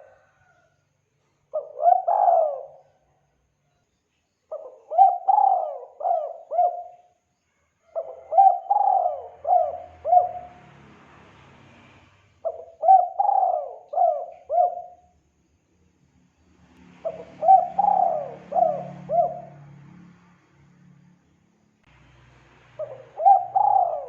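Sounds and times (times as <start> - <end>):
dove cooing: 0.0 - 0.4, 1.5 - 3.0, 4.5 - 7.1, 7.9 - 10.6, 12.4 - 15.1, 17.0 - 19.8, 22.8 - 24.0.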